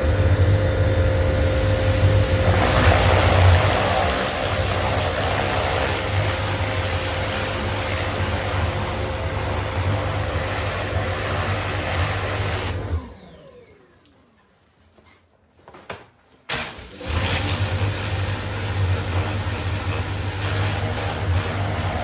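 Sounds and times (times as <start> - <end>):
pressure washer spraying: 1.3 - 12.8, 16.5 - 22.0.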